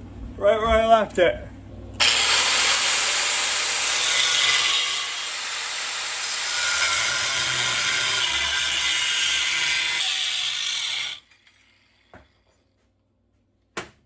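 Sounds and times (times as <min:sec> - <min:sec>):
power grinder on steel: 0:02.0 - 0:11.6.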